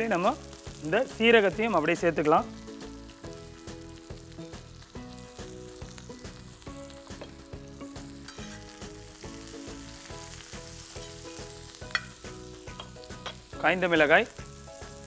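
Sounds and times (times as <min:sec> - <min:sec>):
onions sizzling in hot oil: 0:00.0 - 0:15.0
metal spatula scraping griddle: 0:08.3 - 0:08.8.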